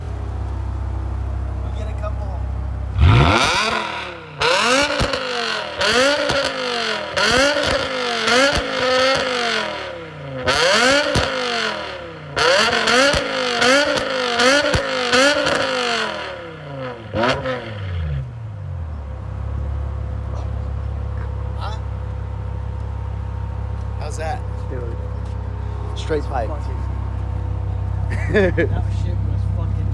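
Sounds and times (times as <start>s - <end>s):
car engine idling: 0.0s - 29.9s
car engine revving in blips: 2.9s - 24.0s.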